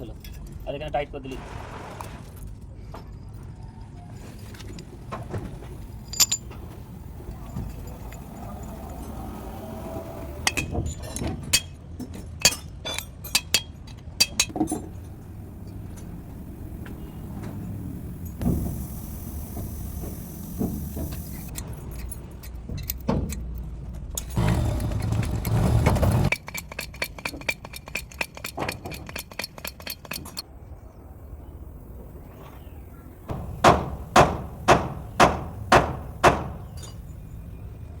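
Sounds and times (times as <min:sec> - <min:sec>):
bottle jack clicking: 0:26.3 - 0:30.4
sharp metal knocks: 0:33.3 - 0:37.1.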